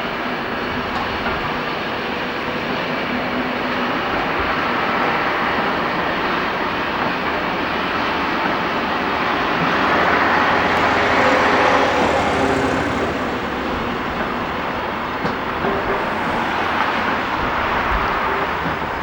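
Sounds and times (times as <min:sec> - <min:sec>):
diesel train running: 0:00.0 - 0:19.0.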